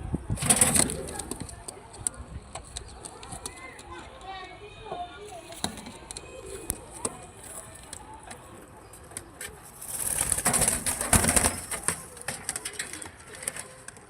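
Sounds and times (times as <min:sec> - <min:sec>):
loud rustling: 0:09.6 - 0:13.8.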